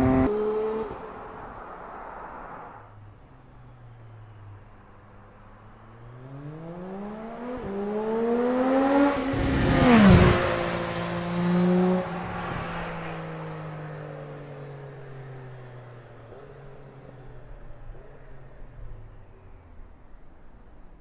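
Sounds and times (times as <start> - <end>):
motorcycle engine accelerating: 0.0 - 1.4, 6.2 - 12.9.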